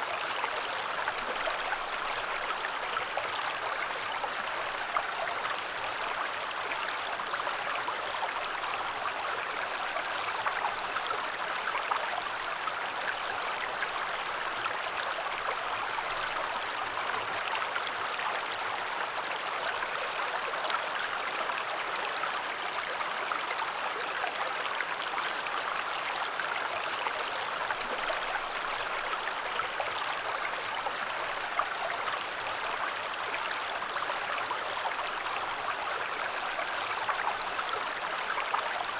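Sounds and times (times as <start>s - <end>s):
river water rushing: 0.0s - 3.2s, 24.7s - 31.4s.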